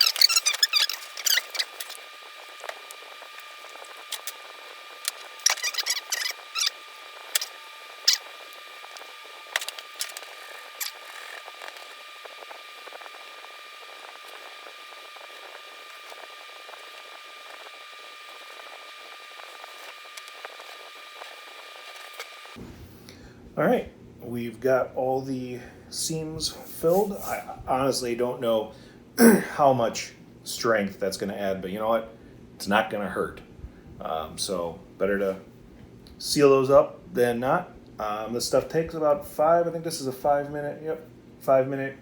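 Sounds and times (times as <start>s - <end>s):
epoxy mixing clicks and scrapes: 0.0s - 13.2s.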